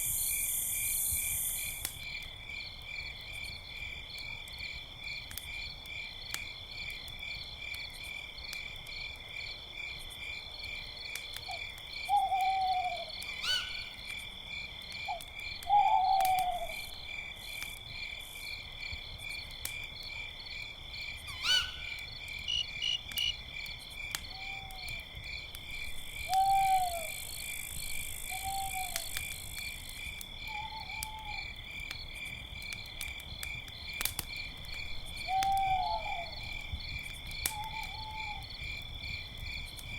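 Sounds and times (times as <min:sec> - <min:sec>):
crickets chirping: 0:00.0 - 0:39.9
owl hooting: 0:12.1 - 0:13.9, 0:21.3 - 0:23.3, 0:26.4 - 0:27.2, 0:28.3 - 0:29.0.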